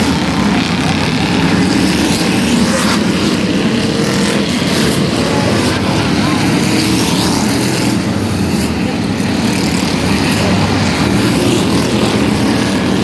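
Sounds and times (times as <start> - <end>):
vehicle engines running loudly: 0.0 - 13.0.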